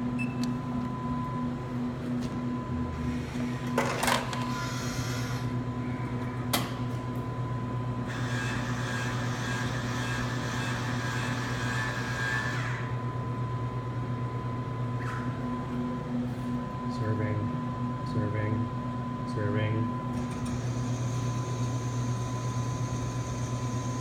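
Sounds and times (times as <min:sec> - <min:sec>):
steady electrical hum: 0:00.0 - 0:24.0
motor whirring: 0:03.1 - 0:05.6.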